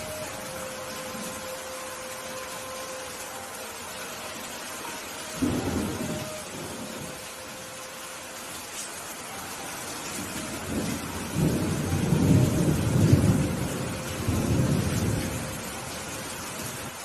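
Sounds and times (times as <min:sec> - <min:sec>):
rain falling: 0:00.0 - 0:17.0
thunder rolling: 0:05.4 - 0:07.2, 0:10.2 - 0:15.7.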